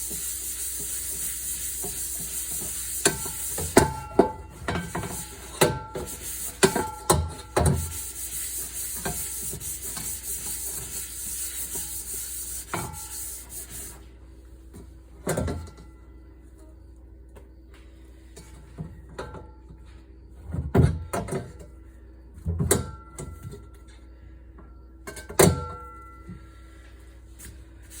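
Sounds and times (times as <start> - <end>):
scrubbing kitchenware: 0.0 - 4.0, 4.8 - 14.0.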